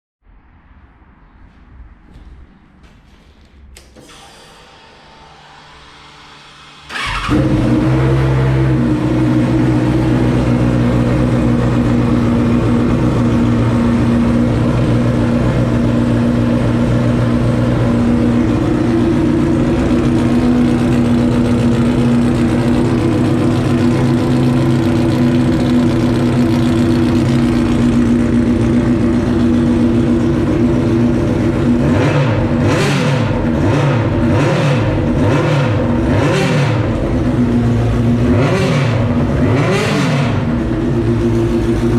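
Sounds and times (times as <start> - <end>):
motorcycle engine revving: 5.2 - 41.9
motorcycle engine idling: 6.8 - 32.7, 33.3 - 41.9.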